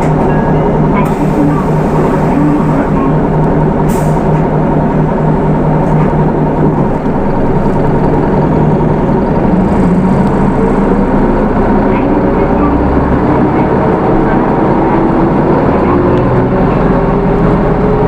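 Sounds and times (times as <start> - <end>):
diesel bus engine running: 0.0 - 18.0.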